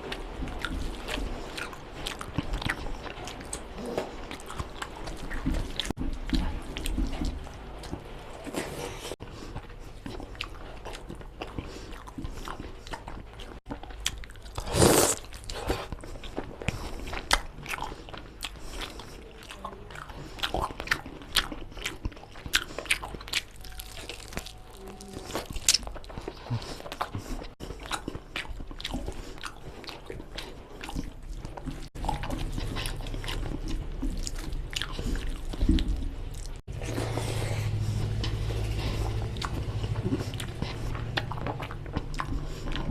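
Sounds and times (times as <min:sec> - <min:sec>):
close chewing and crunching: 0:00.0 - 0:42.9
low steady hum: 0:30.1 - 0:42.9.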